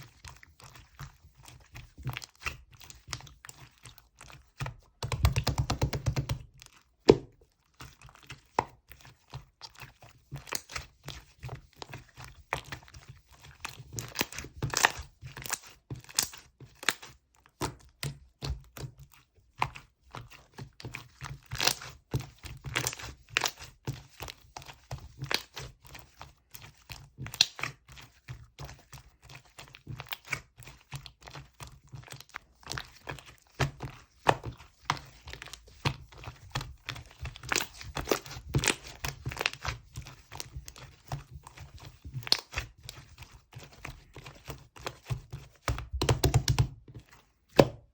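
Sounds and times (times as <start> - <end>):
slime squishing and popping: 14.0 - 17.0, 27.2 - 27.7, 32.1 - 42.8, 44.3 - 46.8.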